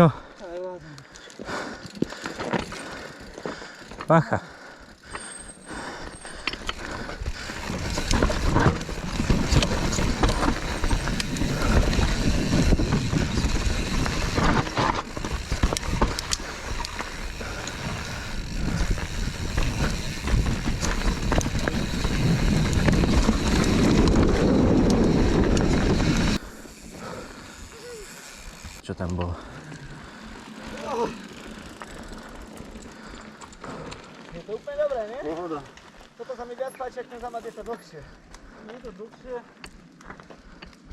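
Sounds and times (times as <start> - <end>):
bike tyres rolling over rocks: 0.1 - 40.9
bike rattling and knocking: 0.6 - 29.3, 30.0 - 35.8
wind on microphone: 7.3 - 26.4.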